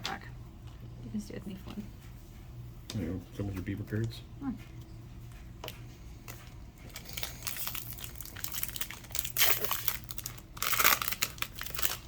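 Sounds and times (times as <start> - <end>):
plastic wrapper crinkling and tearing: 6.9 - 12.0.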